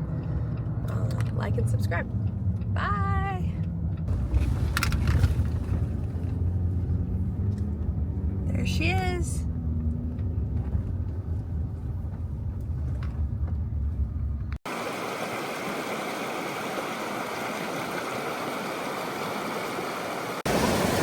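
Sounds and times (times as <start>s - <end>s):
vehicle low rumble: 0.0s - 16.6s
waterfall rushing: 14.7s - 21.0s.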